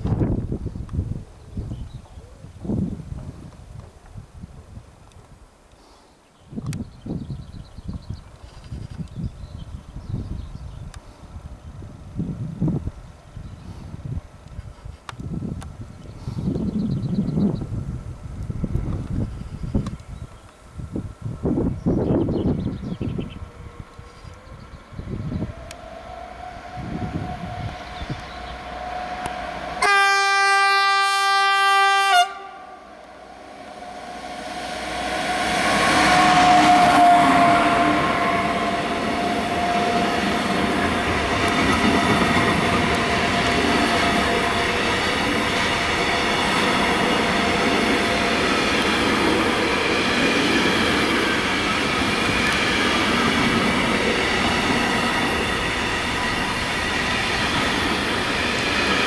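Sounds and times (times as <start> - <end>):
high tone of passing locomotive: 15.2 - 59.0
locomotive horn blast: 25.8 - 45.4
train wagons rumbling and clattering: 33.0 - 59.0.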